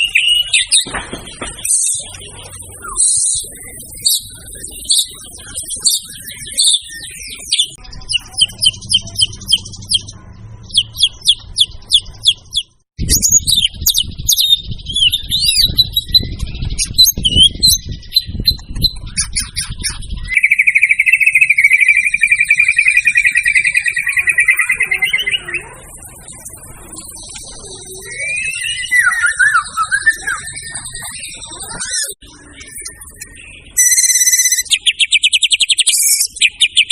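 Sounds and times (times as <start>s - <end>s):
songbird whistles and trills: 0.0s - 10.1s, 10.7s - 36.9s.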